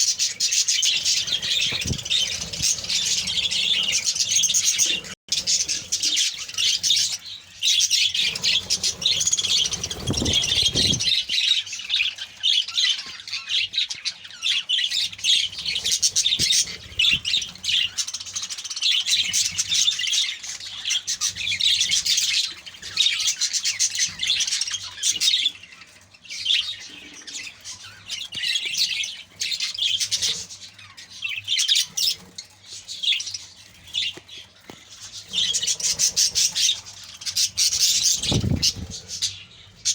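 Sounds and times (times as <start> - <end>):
budgerigars chattering: 0.0 - 11.6.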